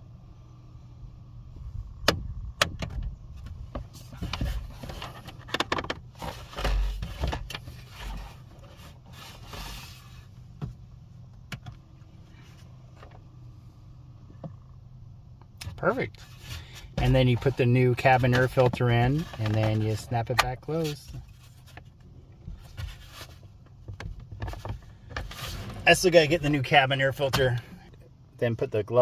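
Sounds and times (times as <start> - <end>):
steady low hum: 0.0 - 29.0
rustling and scraping plastic: 3.6 - 10.4, 15.9 - 26.5.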